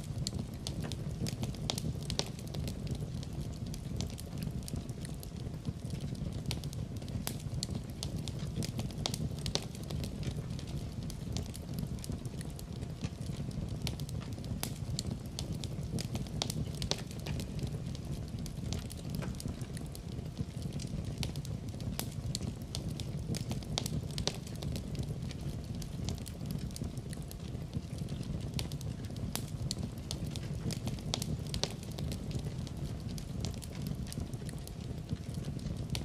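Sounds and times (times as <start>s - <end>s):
fire pops and crackles: 0.0s - 36.0s
low rumble of flames: 0.0s - 36.0s.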